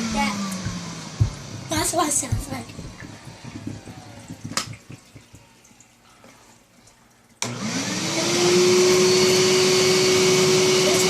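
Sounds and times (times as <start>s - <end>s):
vacuum cleaner motor whine: 0.0s - 1.7s, 7.4s - 11.0s.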